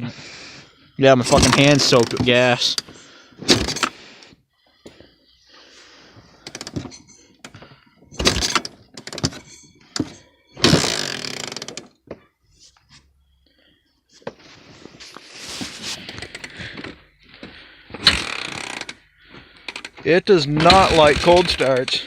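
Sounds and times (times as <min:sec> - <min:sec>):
engine turning over: 0:08.2 - 0:09.4, 0:10.0 - 0:11.9, 0:18.0 - 0:19.0, 0:20.6 - 0:22.0.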